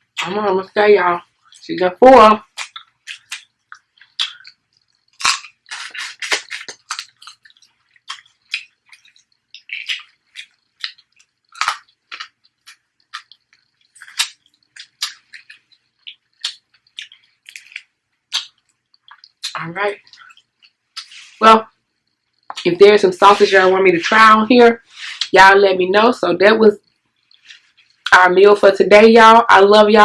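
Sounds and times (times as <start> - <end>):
wet chewing and lip smacking: 2.4 - 22.7, 26.8 - 28.1
sharp cracks of food: 2.5 - 19.6.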